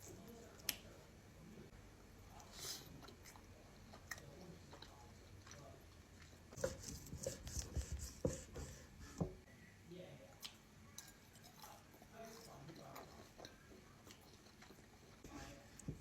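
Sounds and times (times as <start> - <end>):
person chewing: 10.4 - 15.2.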